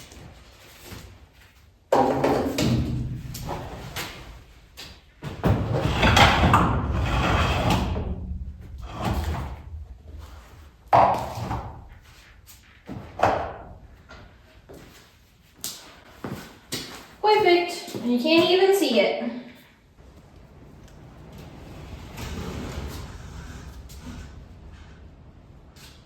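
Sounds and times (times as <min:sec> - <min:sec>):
rough scraping rumble: 0:05.7 - 0:12.2, 0:20.0 - 0:26.0.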